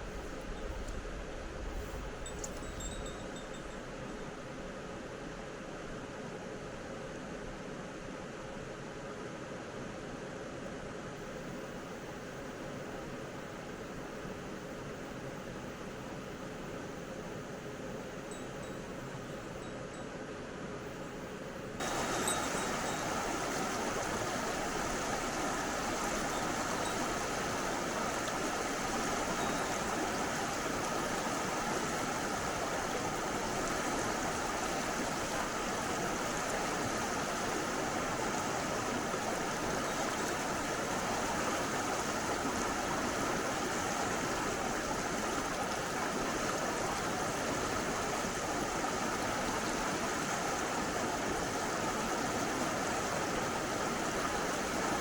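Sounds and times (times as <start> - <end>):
stream water rushing: 21.4 - 55.0.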